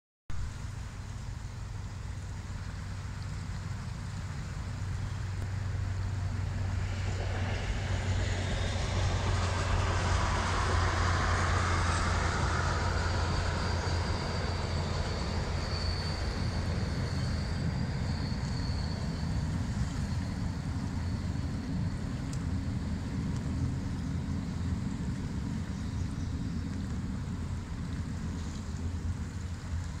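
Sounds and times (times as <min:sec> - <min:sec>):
train rumbling over bridge: 0:00.3 - 0:30.0
river rushing: 0:00.4 - 0:21.4
thin high tone: 0:09.6 - 0:20.3.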